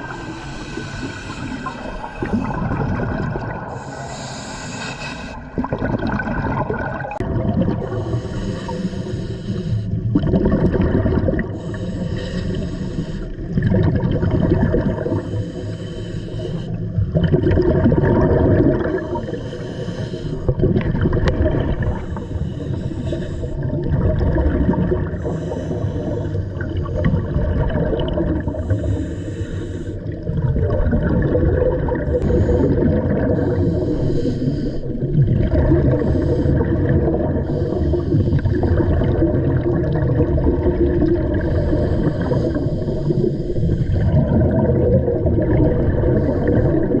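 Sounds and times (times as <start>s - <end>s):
exhaust bubbles bubbling: 0.0s - 0.4s, 1.4s - 4.0s, 5.4s - 8.4s, 9.9s - 11.8s, 13.4s - 15.2s, 16.9s - 19.3s, 20.5s - 22.3s, 23.5s - 29.0s, 30.0s - 34.1s, 34.8s - 47.0s
diver breathing through regulator: 0.0s - 5.8s, 7.8s - 10.2s, 11.4s - 13.6s, 14.2s - 17.0s, 18.8s - 20.6s, 21.3s - 23.9s, 24.9s - 27.4s, 28.2s - 30.4s, 32.0s - 39.0s, 41.3s - 44.7s, 45.9s - 47.0s.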